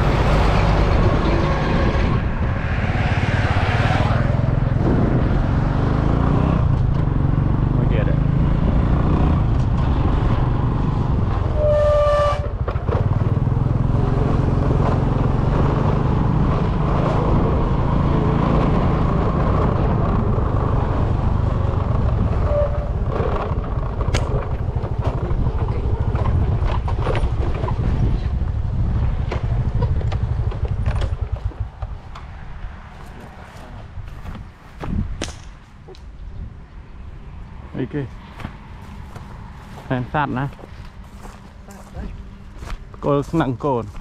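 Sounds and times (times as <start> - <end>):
horn beep: 11.5 - 12.5
vehicle engine running: 38.4 - 44.0.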